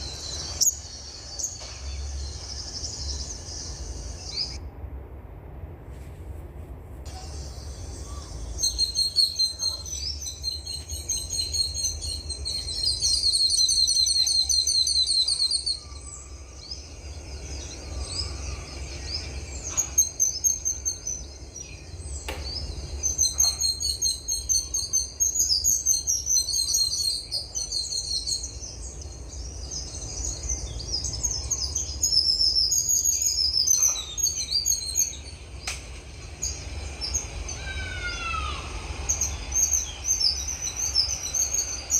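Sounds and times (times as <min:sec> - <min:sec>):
songbirds chirping and trilling: 0:00.0 - 0:04.7, 0:07.0 - 0:41.9
steady low rumble: 0:00.0 - 0:23.3, 0:34.4 - 0:41.9.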